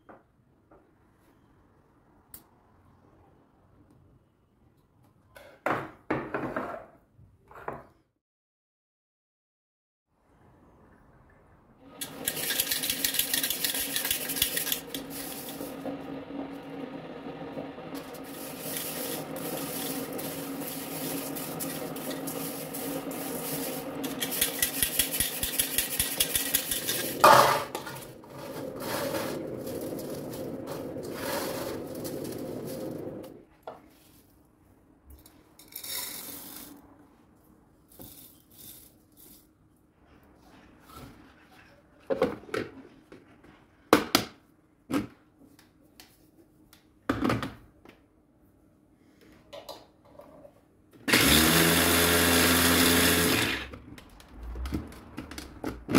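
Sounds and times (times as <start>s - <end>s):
sharp clatter: 12.0s - 15.6s, 24.0s - 28.1s
electric grinder whirring: 51.1s - 53.7s.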